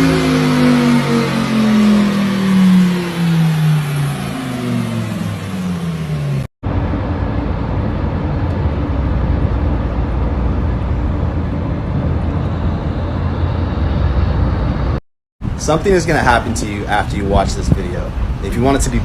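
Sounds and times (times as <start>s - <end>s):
sports car engine revs falling: 0.0s - 6.5s
car driving drone: 0.0s - 19.0s.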